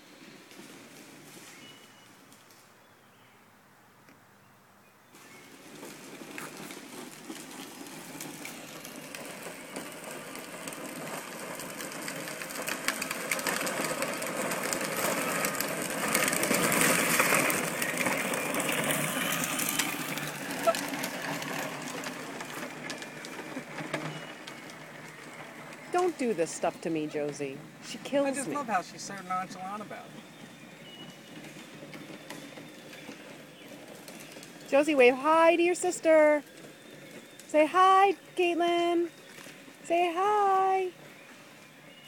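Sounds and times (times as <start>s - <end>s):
plastic wheels crackling on ground: 0.0s - 3.3s, 5.0s - 42.0s
toy vehicle motor whirring: 5.5s - 25.2s.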